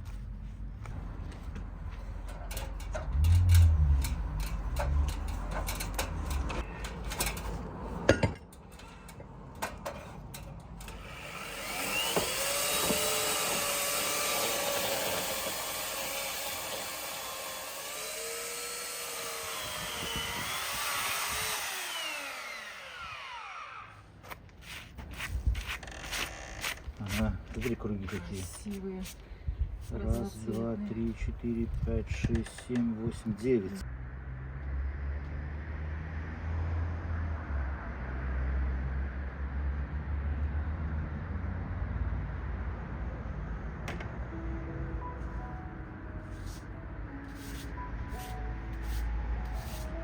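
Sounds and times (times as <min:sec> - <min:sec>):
power saw cutting wood: 0:10.8 - 0:24.0, 0:47.4 - 0:50.0.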